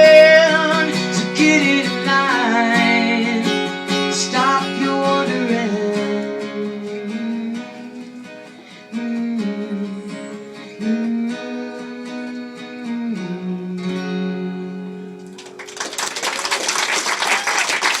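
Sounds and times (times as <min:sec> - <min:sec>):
acoustic guitar strummed chords: 0:00.0 - 0:15.7
audience applause: 0:15.2 - 0:18.0.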